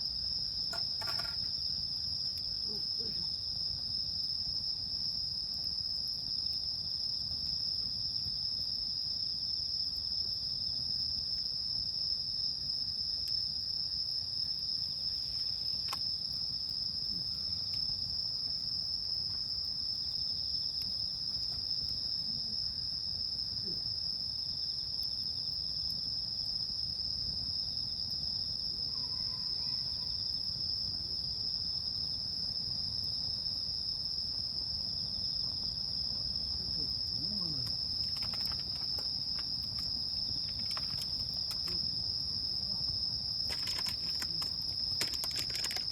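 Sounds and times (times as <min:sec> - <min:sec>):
night insects chirring: 0:00.0 - 0:45.9
campfire pops: 0:00.6 - 0:02.6, 0:15.7 - 0:16.8, 0:20.7 - 0:22.2, 0:37.6 - 0:42.1, 0:43.4 - 0:45.9.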